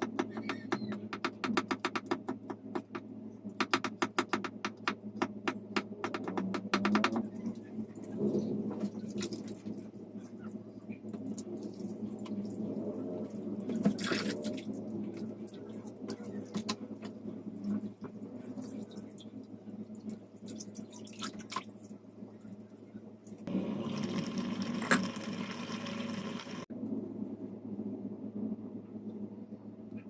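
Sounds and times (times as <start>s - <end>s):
water running into sink: 23.5s - 26.6s.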